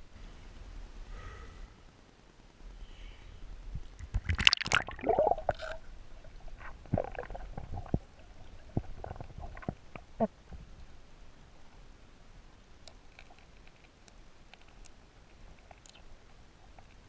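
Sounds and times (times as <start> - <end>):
water gurgling and bubbling: 4.3 - 10.4.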